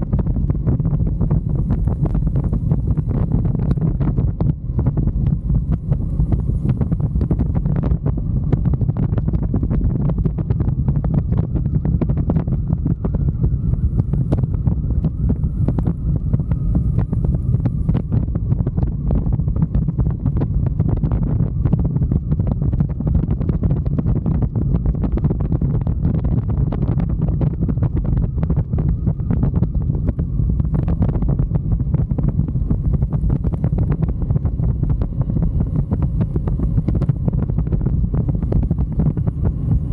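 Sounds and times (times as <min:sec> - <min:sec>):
wind buffeting microphone: 0:00.0 - 0:39.9
motorcycle running: 0:12.5 - 0:20.9, 0:29.7 - 0:39.9.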